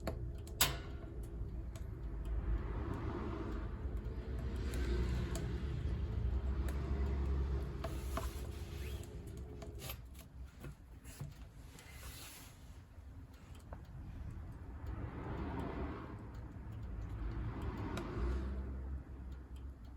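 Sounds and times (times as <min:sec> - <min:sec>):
low fire rumble: 0:00.1 - 0:09.6
wood fire crackling: 0:02.6 - 0:14.7.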